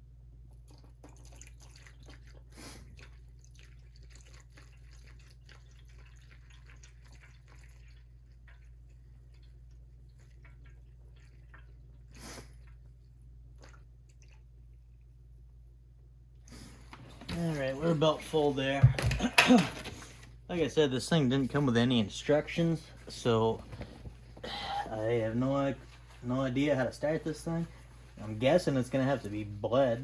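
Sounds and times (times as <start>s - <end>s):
fuel trickling and dripping: 0.6s - 12.1s.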